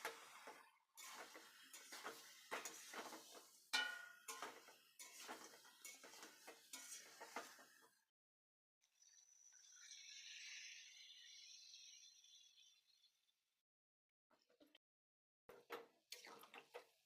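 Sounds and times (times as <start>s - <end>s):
metal spoon scraping cooking pot: 4.2s - 7.7s.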